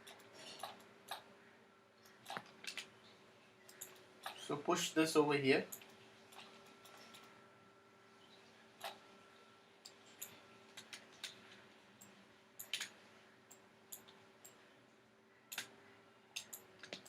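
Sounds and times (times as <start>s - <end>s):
computer mouse clicking: 0.0s - 1.3s, 2.0s - 2.9s, 3.7s - 4.4s, 8.8s - 9.0s, 9.8s - 14.6s, 15.5s - 17.0s
faint steady hum: 0.0s - 17.0s.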